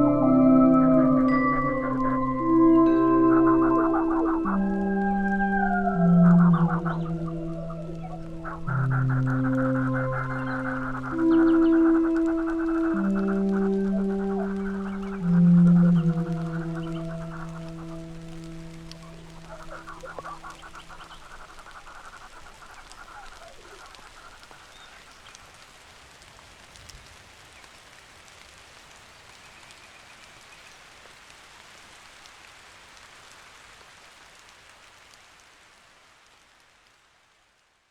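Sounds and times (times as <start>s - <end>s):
held note: 0.0s - 20.2s
rain-like hiss: 0.0s - 37.9s.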